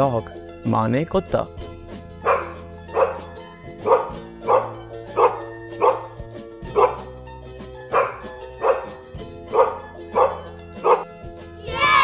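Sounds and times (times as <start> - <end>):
background music: 0.0 - 12.0
dog barking: 2.2 - 7.1, 7.9 - 11.1.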